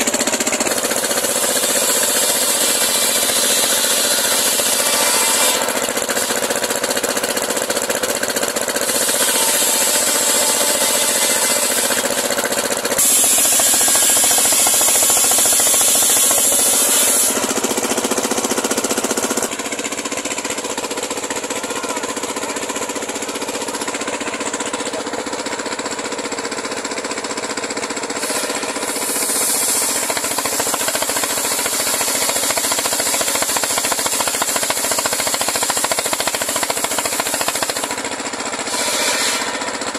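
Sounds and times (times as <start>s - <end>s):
saw blade cutting log: 0.0s - 39.9s
saw motor running: 0.0s - 39.9s.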